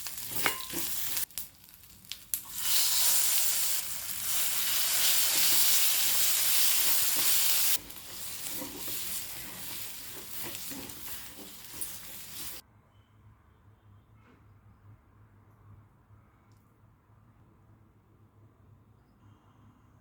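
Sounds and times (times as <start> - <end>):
oil sizzling in a frying pan: 0.0 - 12.6.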